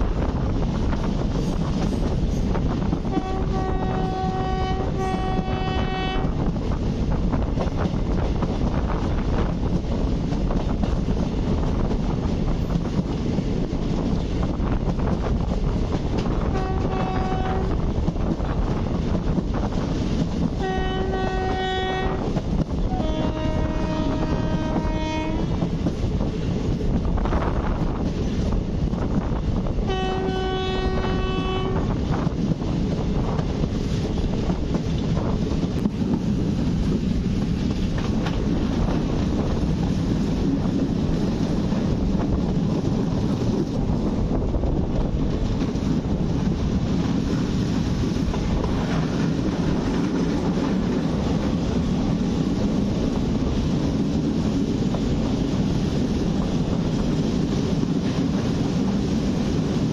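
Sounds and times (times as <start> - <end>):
train rumbling on rails: 0.0 - 59.9
train horn: 3.0 - 6.4, 16.4 - 17.8, 20.6 - 25.6, 29.8 - 32.1.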